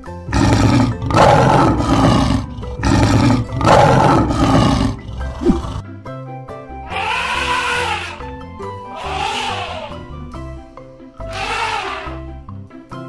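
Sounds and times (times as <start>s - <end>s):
lion roaring: 0.0s - 5.8s.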